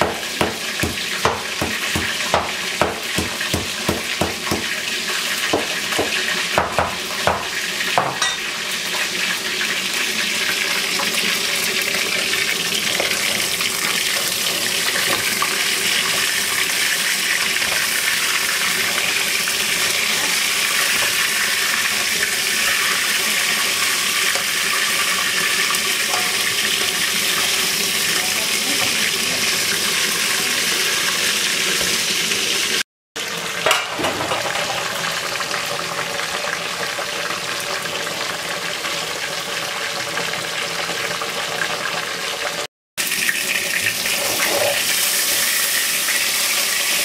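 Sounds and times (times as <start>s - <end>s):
utensil knocking on pan: 0.0s - 4.8s, 5.5s - 8.5s, 26.1s - 26.6s
chicken wings sizzling in a pan: 0.0s - 47.0s.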